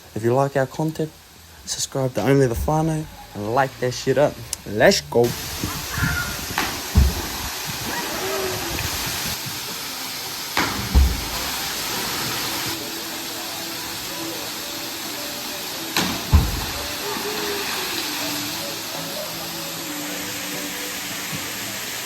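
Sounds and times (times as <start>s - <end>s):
waterfall rushing: 1.1s - 22.0s
faint distant voices: 11.2s - 22.0s.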